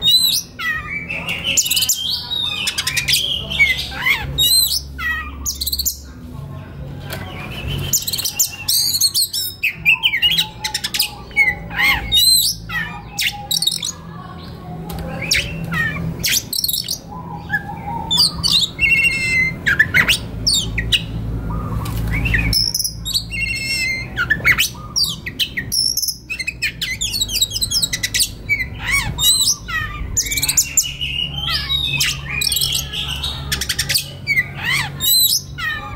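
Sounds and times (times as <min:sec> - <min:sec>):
bird scratchy chattering: 0:00.0 - 0:06.0, 0:07.2 - 0:35.9
bird singing whistles and chirps: 0:07.3 - 0:13.9, 0:15.2 - 0:35.9.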